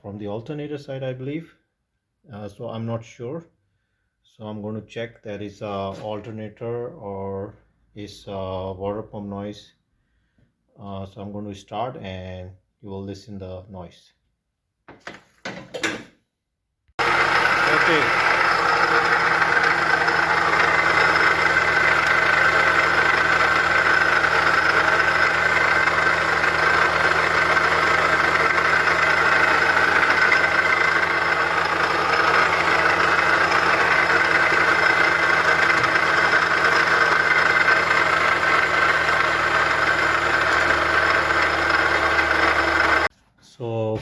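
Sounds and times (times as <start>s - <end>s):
car engine idling: 17.0s - 43.1s.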